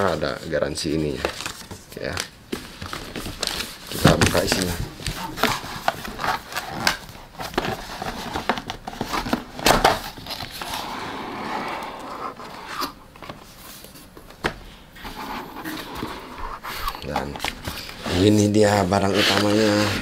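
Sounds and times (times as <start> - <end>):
packaging rustling: 1.0 - 10.9, 15.6 - 20.0.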